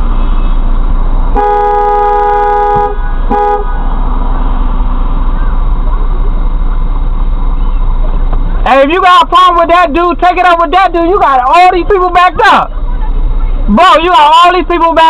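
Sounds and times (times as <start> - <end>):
street noise: 0.0 - 15.0
car horn honking: 1.3 - 4.6.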